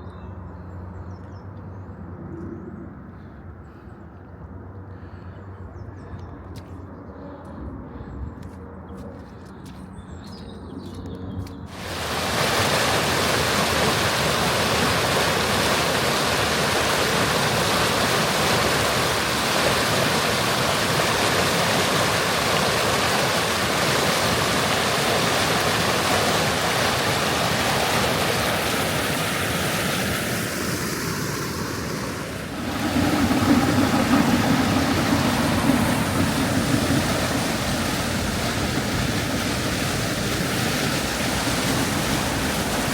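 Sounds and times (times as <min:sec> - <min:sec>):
river water rushing: 0:11.7 - 0:42.9.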